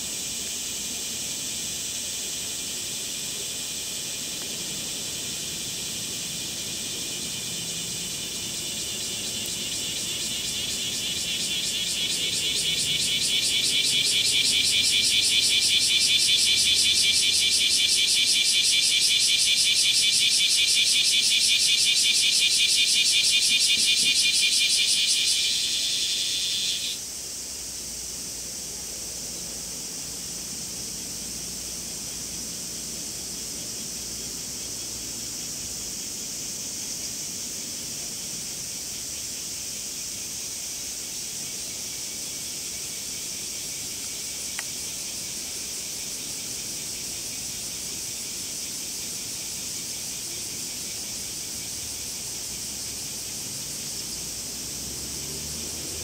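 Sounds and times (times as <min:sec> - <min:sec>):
cicada pulsing buzz: 0:00.0 - 0:56.0
distant cicadas droning: 0:00.0 - 0:56.0
faint click: 0:44.5 - 0:44.7.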